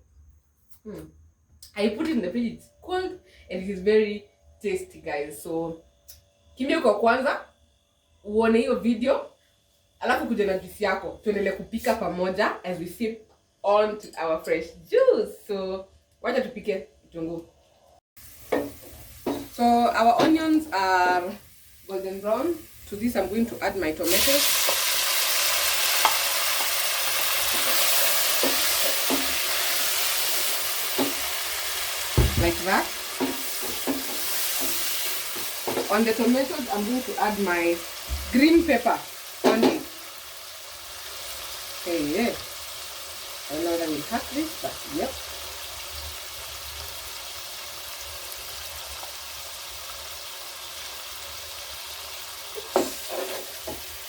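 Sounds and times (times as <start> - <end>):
onions sizzling in oil: 18.2 - 54.0.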